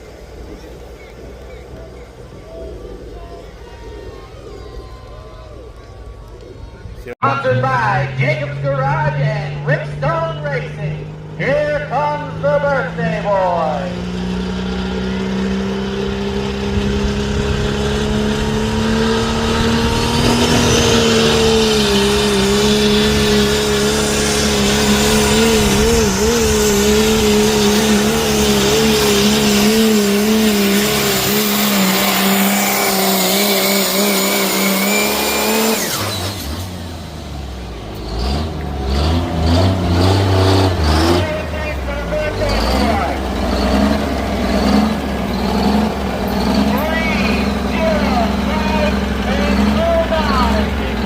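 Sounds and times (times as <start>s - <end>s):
truck engine at full throttle: 0.0s - 51.0s
high whine: 40.6s - 51.0s.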